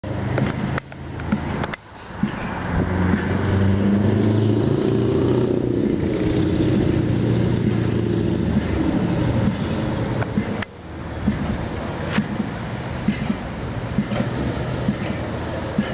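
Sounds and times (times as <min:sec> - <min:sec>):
truck diesel engine pulling away: 0:02.3 - 0:10.2.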